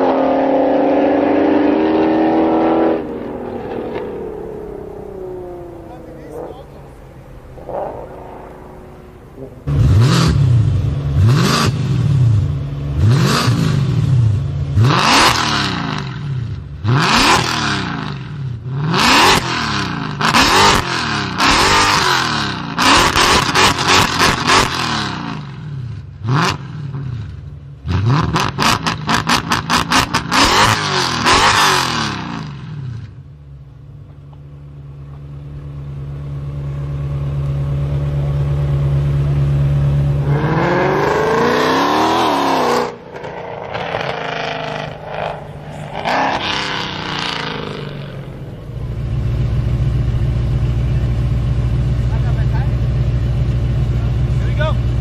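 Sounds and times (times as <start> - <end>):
car accelerating: 0.0 - 55.0
car engine revving: 0.0 - 55.0
car engine idling: 3.0 - 13.2, 33.0 - 40.8, 42.9 - 55.0.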